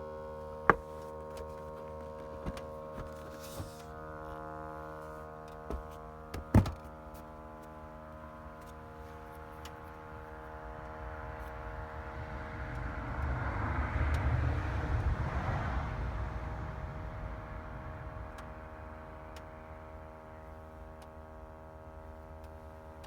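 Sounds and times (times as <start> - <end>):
many-toned car buzz: 0.0 - 23.0
knocks: 0.7 - 1.0, 5.6 - 6.9.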